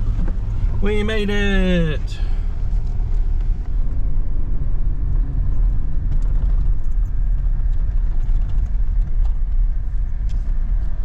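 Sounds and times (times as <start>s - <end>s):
engine and tyres rumbling: 0.0s - 11.0s
light rattles and clicks: 5.5s - 11.0s.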